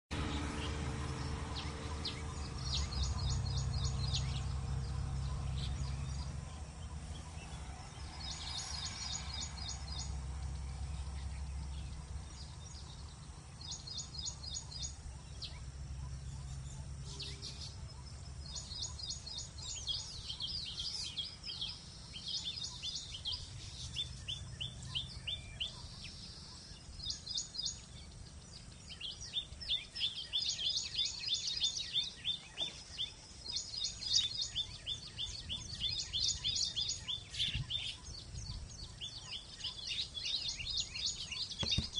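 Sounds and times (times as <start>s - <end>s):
low background rumble: 0.1s - 30.2s
small birds chirping: 0.1s - 41.9s.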